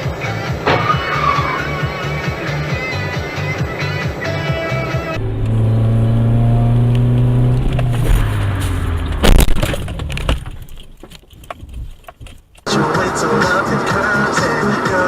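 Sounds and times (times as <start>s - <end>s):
car low hum: 0.5s - 12.7s
loud crash impact: 0.6s - 3.3s, 7.9s - 10.7s
short rattle: 6.8s - 12.7s.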